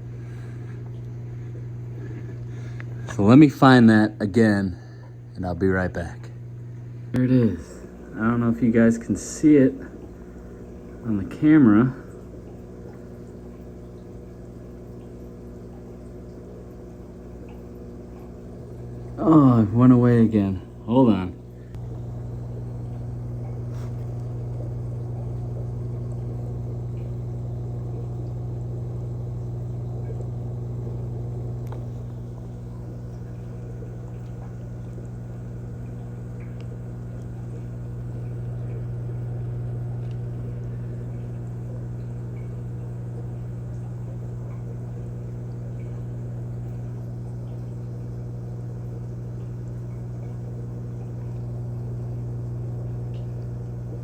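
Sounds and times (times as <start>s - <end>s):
low electrical hum: 0.0s - 54.0s
faint ticks: 30.0s - 54.0s.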